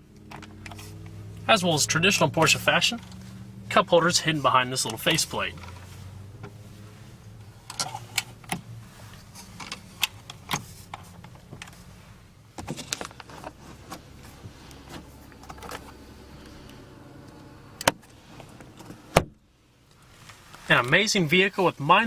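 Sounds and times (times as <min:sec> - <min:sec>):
car interior fittings clicking: 0:00.1 - 0:01.2, 0:07.6 - 0:08.8, 0:17.2 - 0:20.0.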